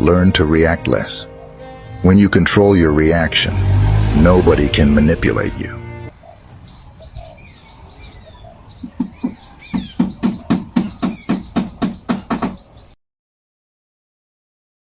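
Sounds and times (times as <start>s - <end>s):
birds chirping: 0.0s - 13.0s
rapid sharp knocks: 8.9s - 12.6s.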